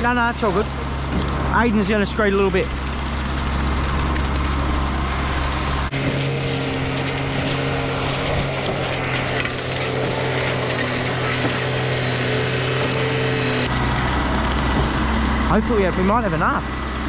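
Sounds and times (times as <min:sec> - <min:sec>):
gritty scraping noise: 0:00.0 - 0:13.7
engine running steadily: 0:00.0 - 0:17.0.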